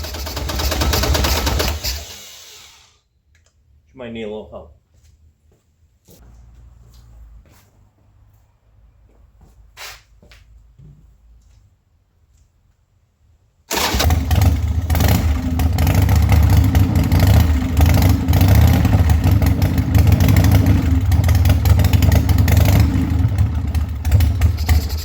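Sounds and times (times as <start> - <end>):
motorcycle engine running unevenly: 14.1 - 25.0.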